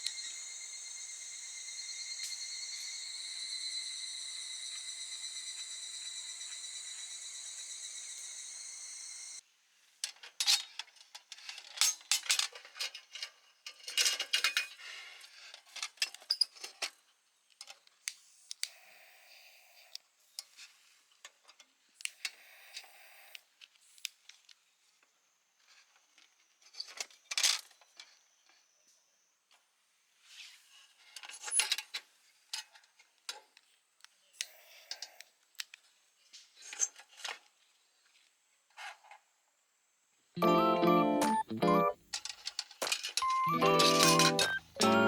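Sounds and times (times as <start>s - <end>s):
crickets trilling: 0.0s - 9.4s
camp cookware clinking: 42.8s - 45.0s.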